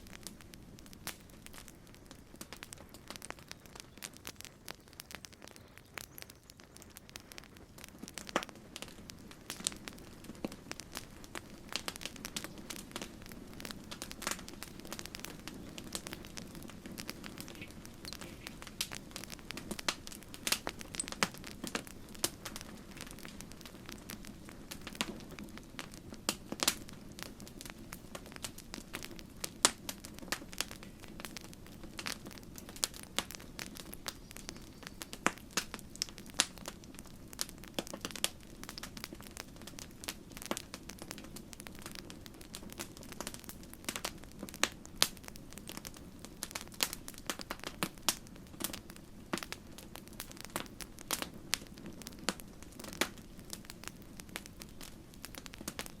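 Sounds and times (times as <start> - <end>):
campfire crackling and popping: 0.0 - 56.0.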